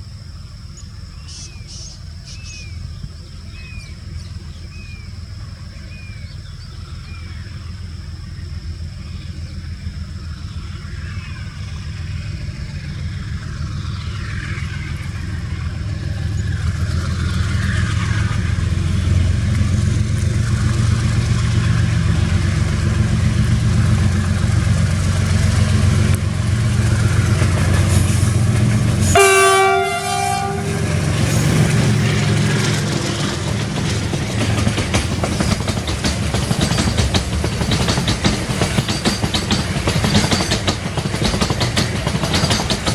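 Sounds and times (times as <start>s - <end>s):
locomotive engine rumbling: 0.0s - 42.9s
train wheels clacking on rail joints: 12.0s - 42.9s
train horn blast: 29.0s - 32.2s.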